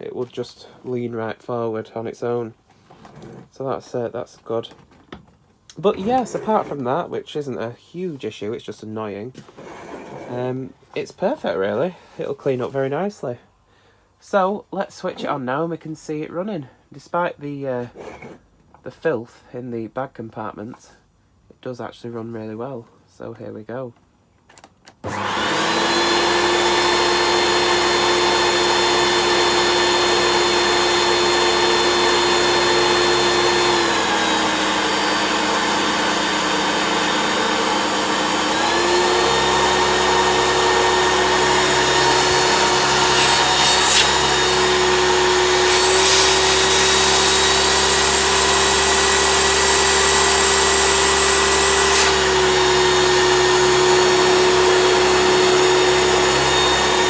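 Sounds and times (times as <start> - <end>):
vacuum cleaner motor whining: 25.0 - 57.0.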